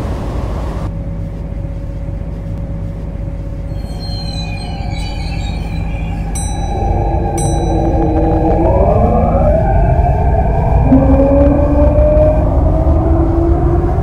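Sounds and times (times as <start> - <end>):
train rumbling: 0.0 - 14.0
high wheel squeal: 3.6 - 12.3.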